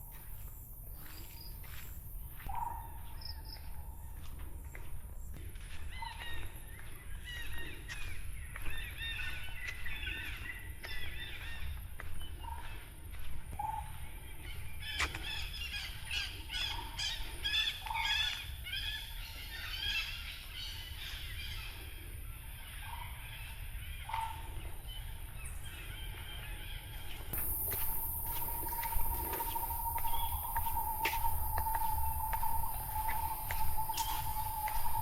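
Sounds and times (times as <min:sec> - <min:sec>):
jungle birds chattering: 0:13.6 - 0:35.0
low repeating bird note: 0:27.4 - 0:35.0
low rumble: 0:27.4 - 0:35.0.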